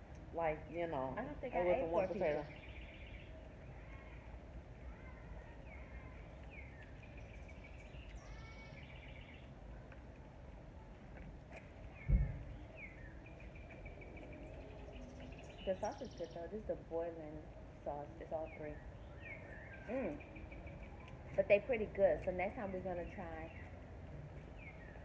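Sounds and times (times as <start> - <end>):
outdoor background noise: 0.0 - 25.0
songbirds chirping: 0.0 - 25.0
low thump: 12.0 - 12.5.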